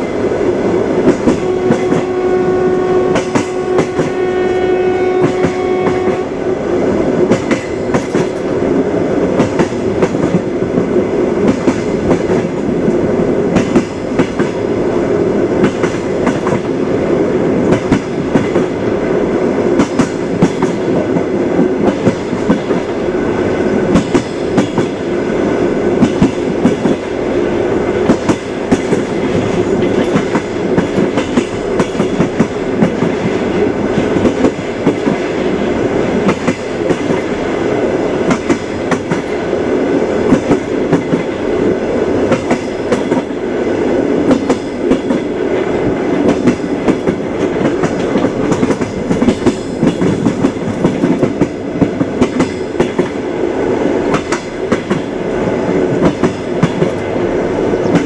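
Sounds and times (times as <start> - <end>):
train rumbling: 0.0 - 58.0
train wheels clickety-clack: 0.0 - 58.0.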